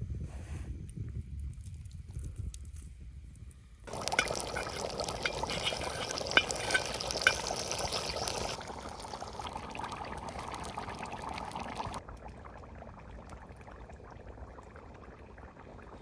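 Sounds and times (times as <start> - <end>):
liquid pouring: 3.9 - 16.0.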